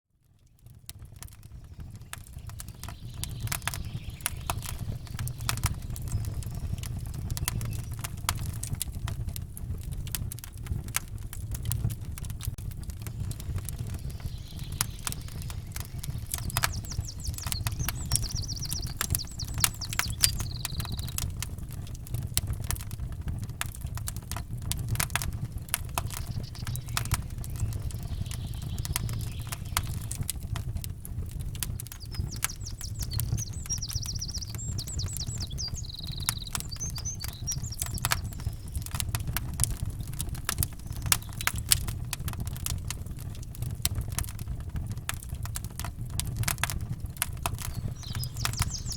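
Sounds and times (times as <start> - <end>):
campfire crackling and popping: 0.3 - 48.9
songbird singing: 1.4 - 8.8, 13.0 - 21.8, 25.1 - 30.8, 31.5 - 42.6, 46.8 - 48.9
low rumble: 24.8 - 31.4.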